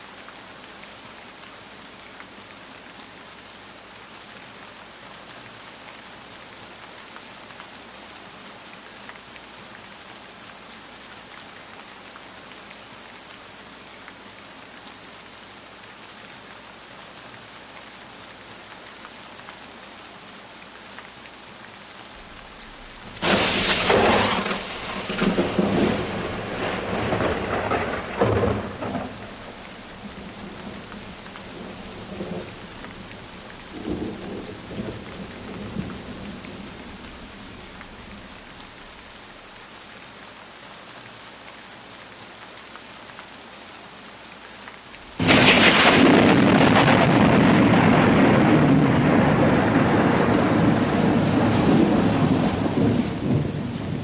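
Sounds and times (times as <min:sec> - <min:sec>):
steady rain falling: 0:00.0 - 0:54.0
thunder rumbling: 0:22.2 - 0:38.8, 0:45.2 - 0:54.0.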